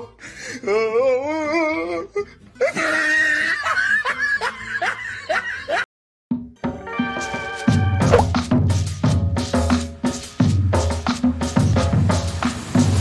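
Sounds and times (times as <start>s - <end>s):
people laughing: 2.6s - 5.8s.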